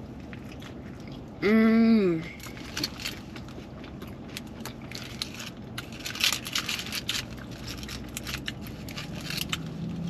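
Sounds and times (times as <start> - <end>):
close-up chewing with mouth clicks: 0.0 - 1.4, 2.3 - 10.0
foil wrapper crackling: 2.4 - 10.0.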